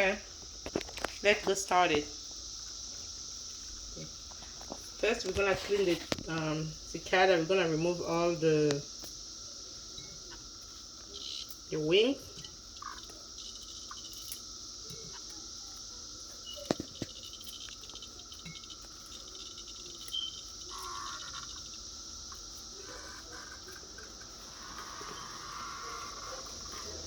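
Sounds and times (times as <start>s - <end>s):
cicadas buzzing: 0.0s - 27.0s.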